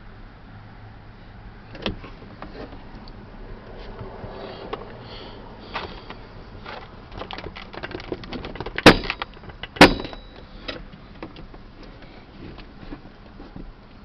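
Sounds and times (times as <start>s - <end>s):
small clicks and rattles: 6.0s - 12.7s.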